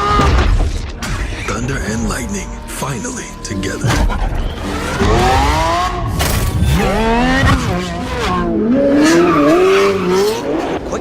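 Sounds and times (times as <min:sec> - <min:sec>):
sports car engine accelerating: 0:03.9 - 0:11.0.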